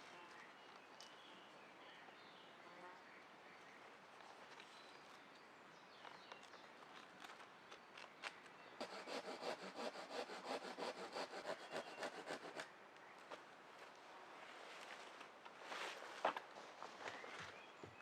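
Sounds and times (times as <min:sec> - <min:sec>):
hand saw cutting wood: 0:08.8 - 0:12.7.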